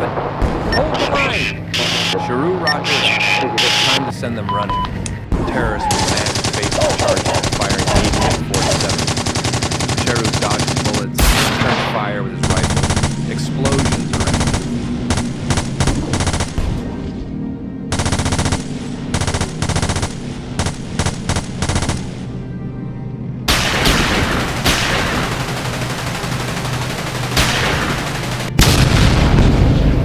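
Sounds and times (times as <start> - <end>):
low music drone: 0.0 - 30.0
explosions with rushing blasts: 5.3 - 17.3, 27.4 - 30.0
automatic gunfire: 5.9 - 16.6, 17.9 - 22.2, 23.5 - 29.0.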